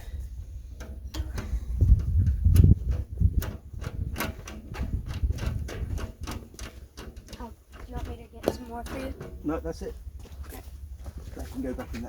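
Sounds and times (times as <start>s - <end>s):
sharp clicks and light knocks: 0.8s - 9.6s.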